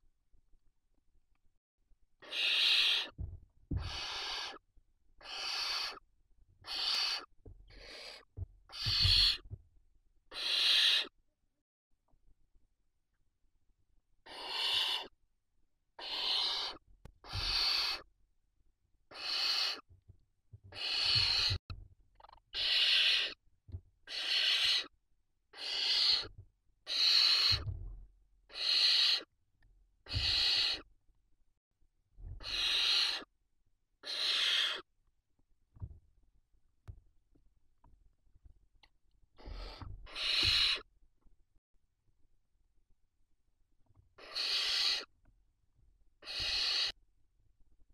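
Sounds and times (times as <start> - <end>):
owl chicks rasping hisses: 2.2 - 3.2, 3.8 - 4.6, 5.2 - 6.0, 6.6 - 9.4, 10.3 - 11.1, 14.2 - 15.1, 16.0 - 18.1, 19.1 - 19.9, 20.7 - 21.6, 22.5 - 23.4, 24.1 - 24.9, 25.5 - 26.3, 26.9 - 27.6, 28.5 - 29.3, 30.0 - 30.9, 32.4 - 33.3, 34.0 - 34.9, 39.4 - 40.9, 44.2 - 45.1, 46.2 - 47.0.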